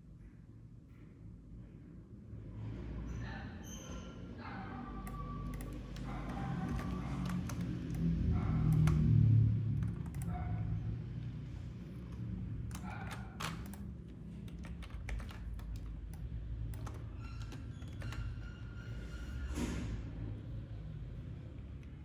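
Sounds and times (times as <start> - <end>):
keyboard keys tapping: 5.0 - 18.5.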